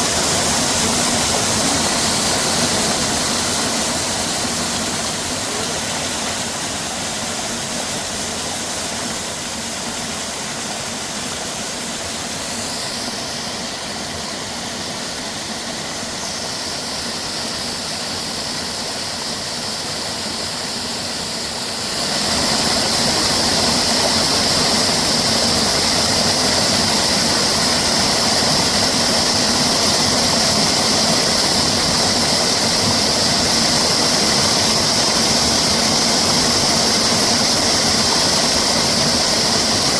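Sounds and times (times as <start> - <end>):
high steady drone: 0.0 - 18.4
stream flowing over rocks: 0.0 - 39.9.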